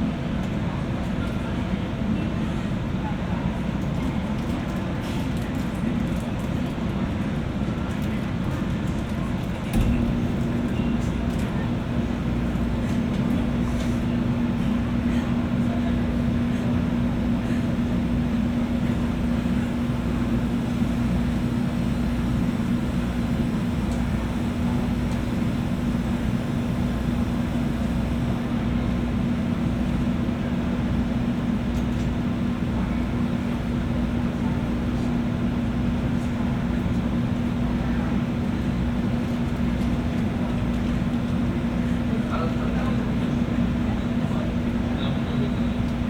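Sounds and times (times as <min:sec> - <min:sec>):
electric train equipment humming: 0:09.6 - 0:46.0.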